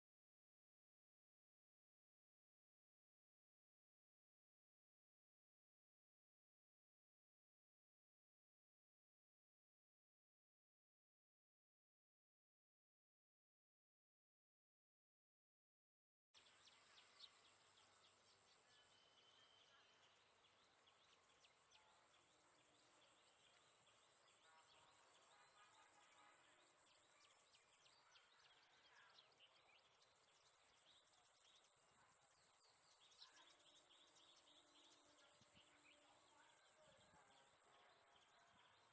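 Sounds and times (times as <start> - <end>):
bird chirps: 16.4 - 38.9.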